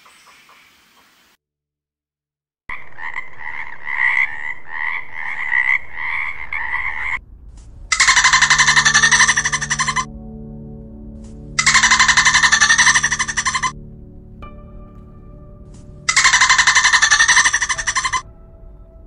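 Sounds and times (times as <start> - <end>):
tree frog croaking and trilling: 2.7 - 7.2, 7.9 - 10.1, 11.4 - 15.0, 15.9 - 18.3.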